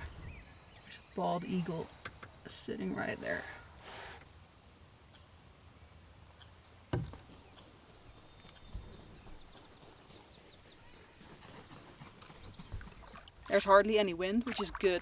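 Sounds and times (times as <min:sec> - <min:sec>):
paddle knocking canoe hull: 0:06.9 - 0:07.3.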